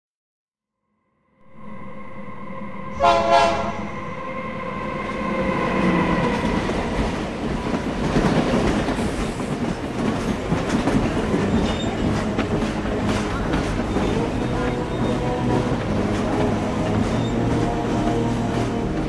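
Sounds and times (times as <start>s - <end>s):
train horn blast: 2.9s - 4.3s, 11.6s - 19.0s
train wheels rumbling on rails: 4.6s - 19.0s.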